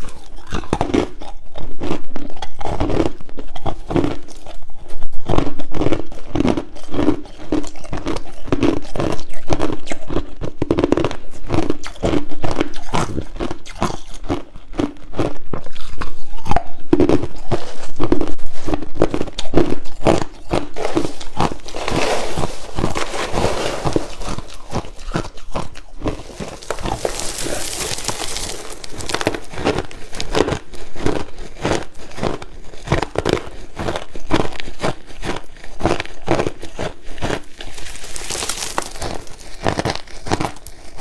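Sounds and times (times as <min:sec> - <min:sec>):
crushed ice crunching: 0:20.1 - 0:41.0.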